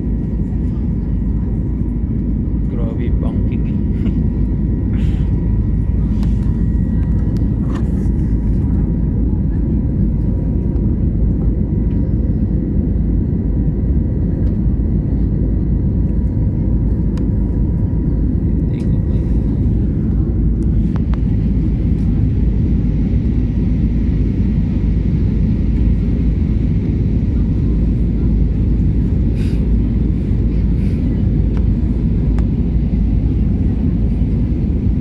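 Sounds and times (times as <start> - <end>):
airliner engines rumbling: 0.0 - 35.0
rushing air in cabin: 2.8 - 8.9, 18.2 - 23.2, 29.0 - 35.0.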